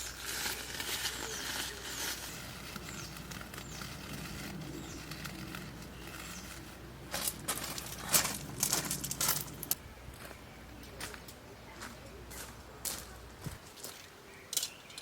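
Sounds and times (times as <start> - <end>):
sharp rustles: 0.0 - 9.8
bird chirping: 1.1 - 12.6, 13.8 - 15.0.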